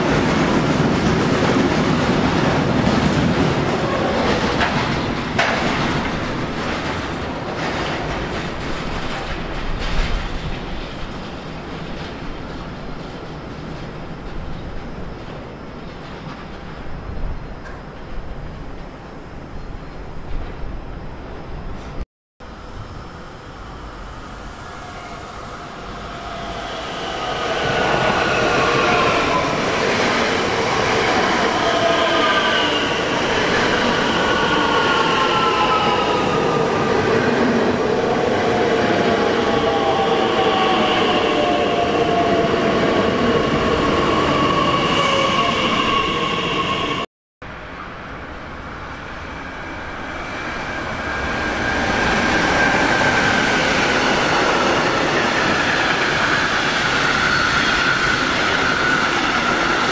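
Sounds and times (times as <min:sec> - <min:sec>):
rumble of passing train cars: 0:00.0 - 0:59.9
train approaching: 0:00.0 - 0:59.9
train wheels squealing: 0:24.3 - 0:36.7, 0:49.4 - 0:59.9.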